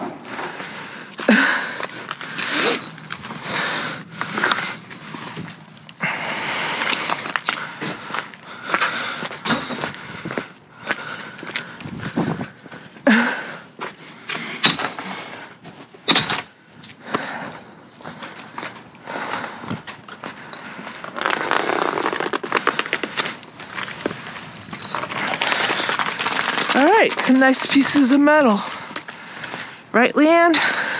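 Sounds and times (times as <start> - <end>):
rattling scrape of metal: 23.6 - 28.2.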